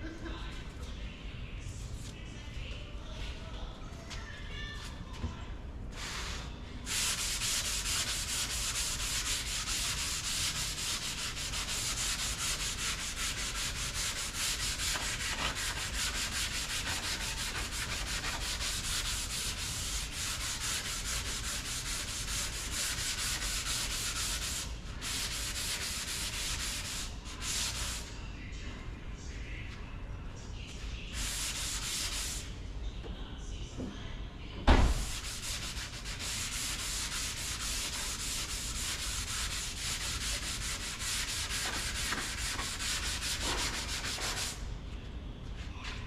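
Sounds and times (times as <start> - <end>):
sanding body filler: 6.0 - 28.1, 31.2 - 32.4, 35.0 - 44.6.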